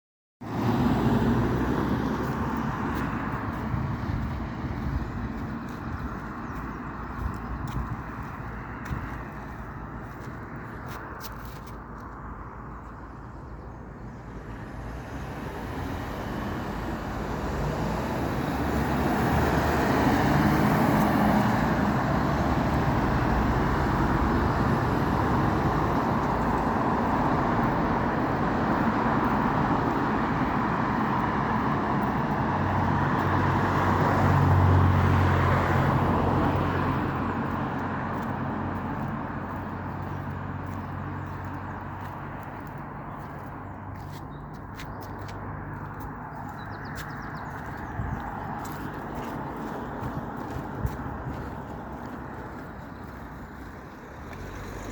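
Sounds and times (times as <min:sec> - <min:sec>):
road traffic passing: 0:00.4 - 0:54.9
heavy vehicle engine drone: 0:21.7 - 0:54.0.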